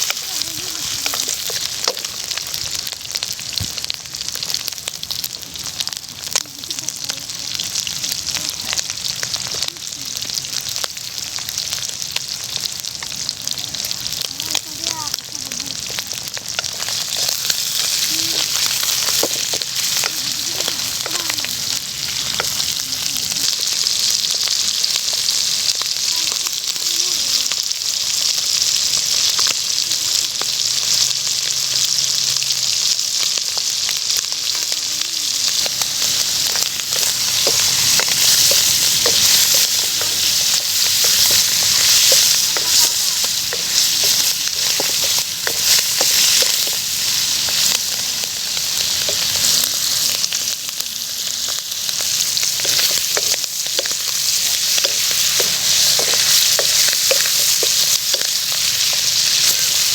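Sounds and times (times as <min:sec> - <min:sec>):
liver sizzling in hot oil: 0:00.0 - 0:59.9
oil crackling: 0:00.0 - 0:59.9
utensil stirring: 0:35.4 - 0:50.0, 0:51.9 - 0:59.9.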